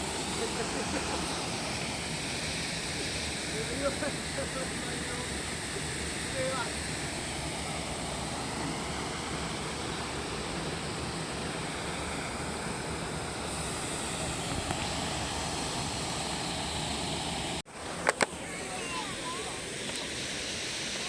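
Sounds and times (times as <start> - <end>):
flowing water rushing: 0.0 - 21.0.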